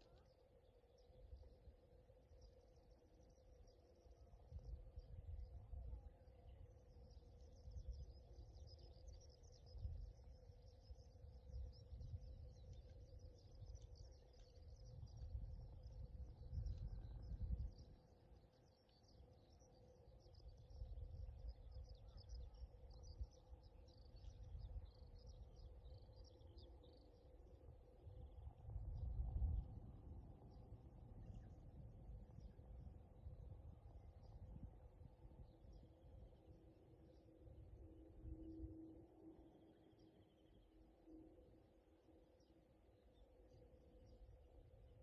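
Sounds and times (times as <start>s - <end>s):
faint steady hum: 0.0s - 45.0s
small birds chirping: 6.2s - 27.6s.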